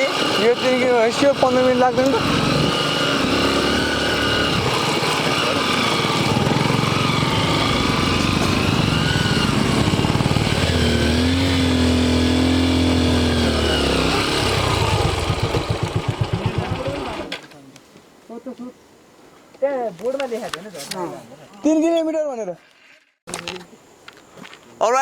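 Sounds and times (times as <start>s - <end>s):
motorcycle engine idling: 0.0s - 17.3s
motorcycle engine revving: 0.0s - 17.4s.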